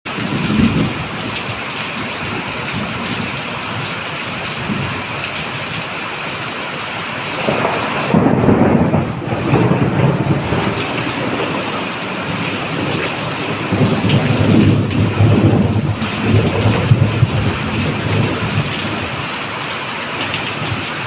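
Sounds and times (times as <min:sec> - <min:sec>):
thunder rumbling: 0:00.1 - 0:05.1, 0:07.3 - 0:19.2
steady rain falling: 0:00.1 - 0:21.0.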